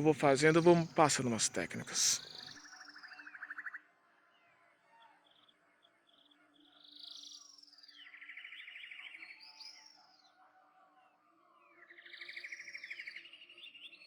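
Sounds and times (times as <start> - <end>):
birds chirping: 0.0 - 2.4.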